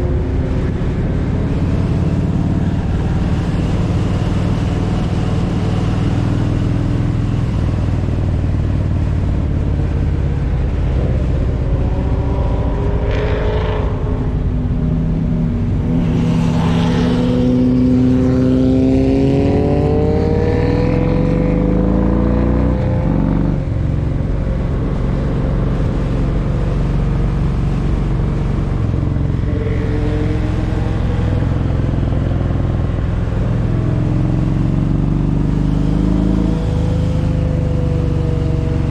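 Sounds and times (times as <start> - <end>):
motorcycle accelerating: 0.0 - 38.9
wind rushing: 9.8 - 21.3.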